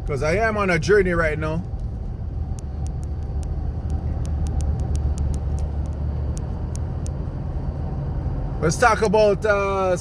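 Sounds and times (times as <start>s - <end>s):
car interior rumble: 0.0s - 10.0s
faint light ticks: 2.5s - 7.2s.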